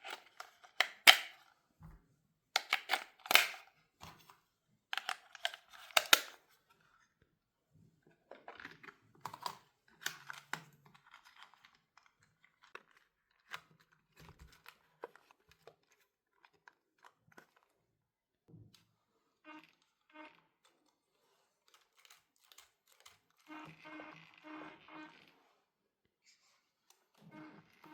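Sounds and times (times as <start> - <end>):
packaging handled with clicks and rustles: 0.0 - 7.2, 8.1 - 18.0, 20.6 - 23.5.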